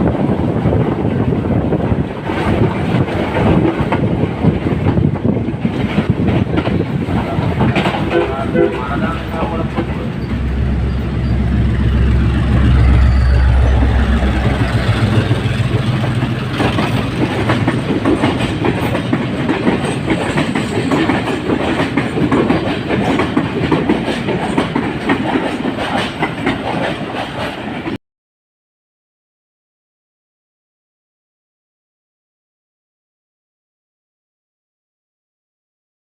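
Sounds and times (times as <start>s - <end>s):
train low drone: 0.0s - 28.0s
train rattling over track: 0.0s - 28.0s.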